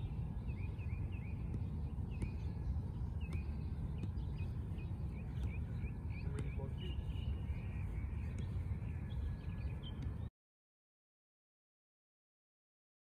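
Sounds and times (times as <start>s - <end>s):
low outdoor rumble: 0.0s - 10.3s
small birds chirping: 0.0s - 10.3s.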